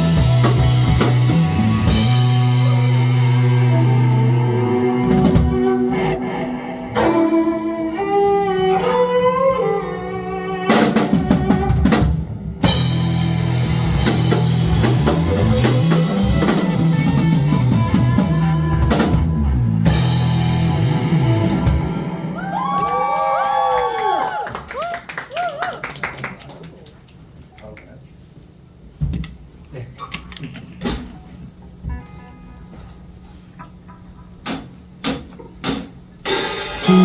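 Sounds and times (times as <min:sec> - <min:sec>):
drums playing hard: 0:00.0 - 0:06.1, 0:10.7 - 0:22.8, 0:34.5 - 0:37.0
rock band playing: 0:00.0 - 0:23.1, 0:36.3 - 0:37.0.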